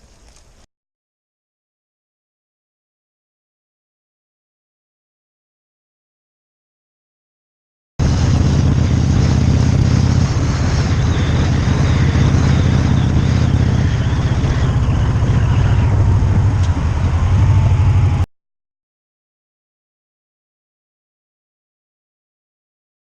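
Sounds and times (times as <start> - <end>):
motorcycle engine running: 8.0 - 18.3
wind rush over microphone: 8.0 - 18.3.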